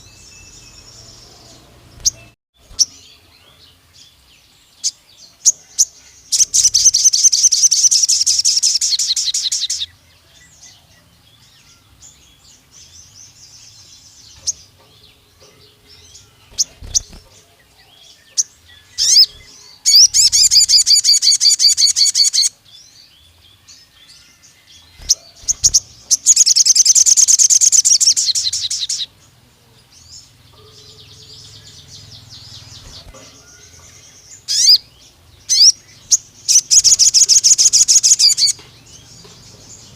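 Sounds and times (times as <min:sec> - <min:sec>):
sunbird high-pitched trills: 0:00.0 - 0:10.0, 0:10.8 - 0:29.2, 0:30.2 - 0:39.9
soft bird chirps: 0:00.0 - 0:39.9.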